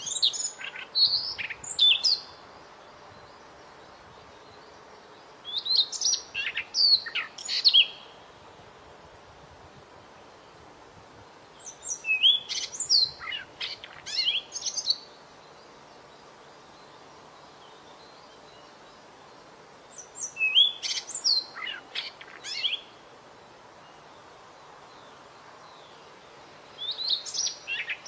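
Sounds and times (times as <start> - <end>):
songbird whistling and chirping: 0.0 - 2.3, 5.4 - 8.1, 11.6 - 15.1, 19.9 - 22.9, 26.8 - 28.0
steady hiss: 0.0 - 28.0.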